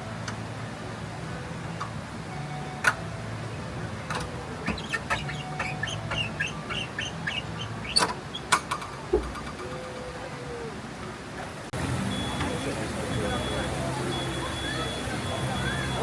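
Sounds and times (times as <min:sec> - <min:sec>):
bird chirping: 0:04.4 - 0:08.6.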